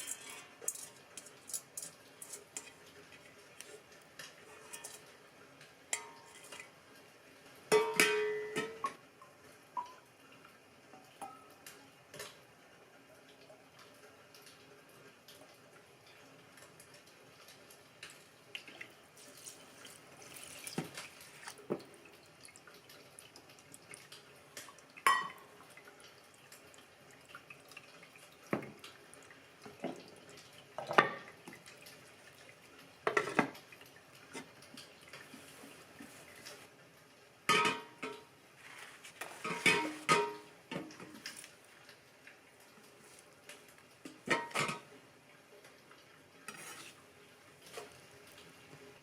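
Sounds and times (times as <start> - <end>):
dishes and utensils clinking: 0.0 - 3.2, 4.2 - 5.2, 5.9 - 6.7, 7.7 - 9.0, 25.1 - 25.5, 37.5 - 38.3, 39.1 - 41.4, 44.1 - 44.9
tap water running: 0.0 - 49.0.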